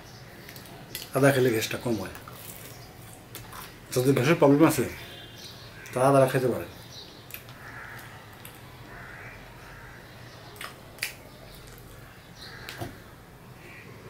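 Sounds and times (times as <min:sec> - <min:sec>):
sharp mouth clicks: 0:10.5 - 0:12.0.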